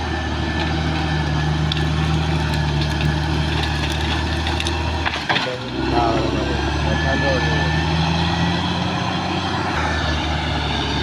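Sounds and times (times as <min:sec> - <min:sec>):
bulldozer diesel engine running: 0:00.0 - 0:11.0.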